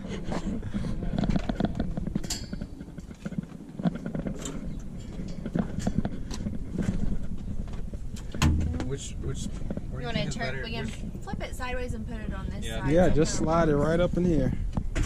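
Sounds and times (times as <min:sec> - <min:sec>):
items knocking and scraping: 0:01.1 - 0:09.0.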